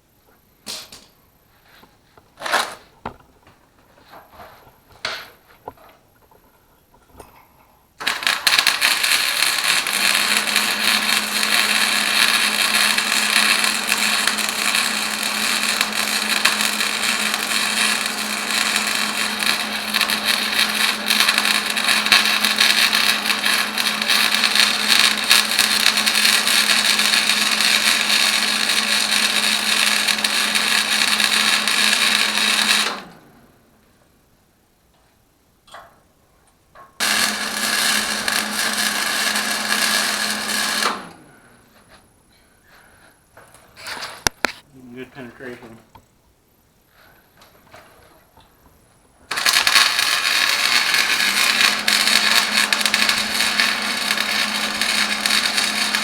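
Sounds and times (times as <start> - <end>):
arc welder crackling hiss: 8.0 - 33.1, 37.0 - 42.0, 49.3 - 56.0.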